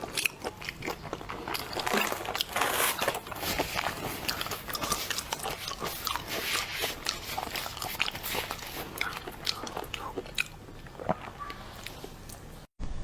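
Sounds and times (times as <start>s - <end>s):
crunchy chewing: 0.0s - 12.7s
wet mouth clicks: 4.2s - 12.5s.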